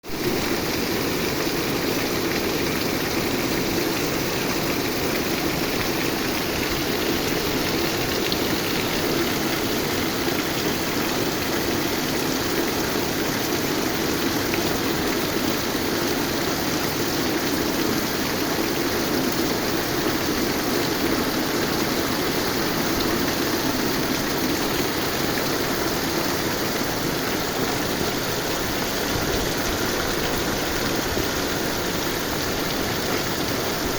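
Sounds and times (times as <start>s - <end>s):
rain falling: 0.0s - 33.9s.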